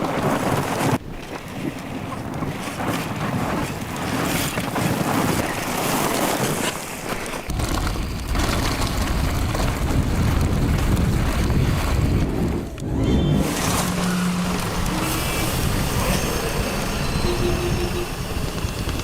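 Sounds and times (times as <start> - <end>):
wind rushing over microphone: 7.5 - 19.0.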